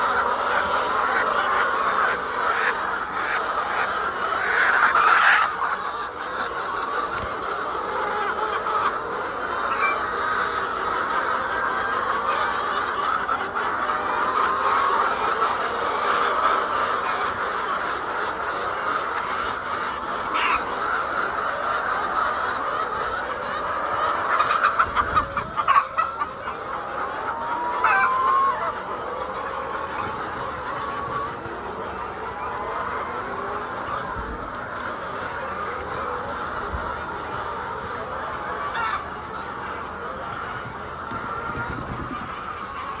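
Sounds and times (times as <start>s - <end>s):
hens clucking: 0.0s - 43.0s.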